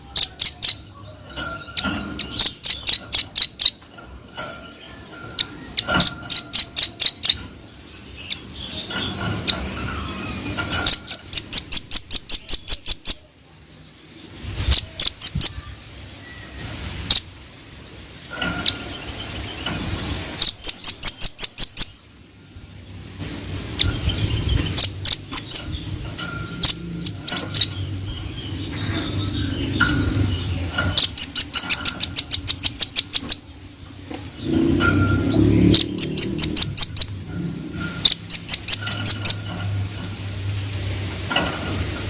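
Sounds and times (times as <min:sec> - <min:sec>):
bird singing sharp chit notes: 0:00.0 - 0:13.3.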